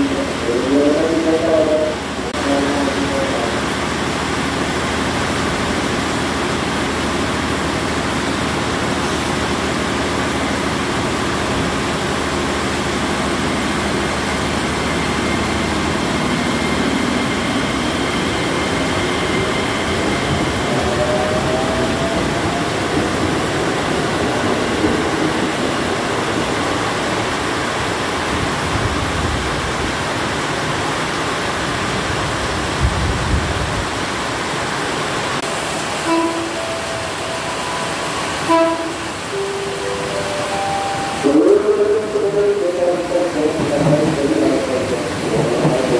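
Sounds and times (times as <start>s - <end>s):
heavy rain hissing: 0.0s - 45.9s
electric train running: 2.4s - 29.4s.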